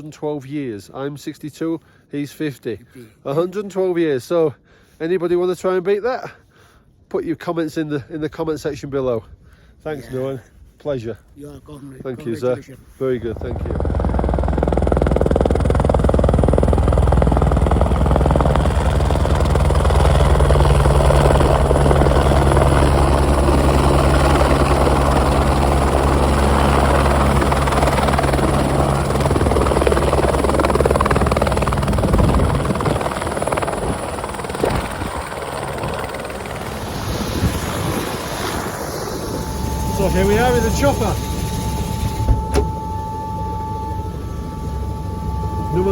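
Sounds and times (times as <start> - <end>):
helicopter rotor and engine: 12.0 - 45.9.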